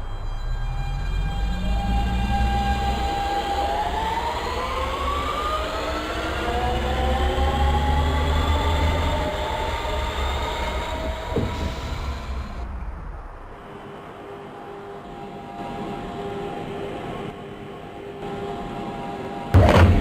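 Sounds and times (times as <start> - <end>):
electric traction motor whine: 0.0 - 19.6
train running gear rumble: 1.0 - 13.6.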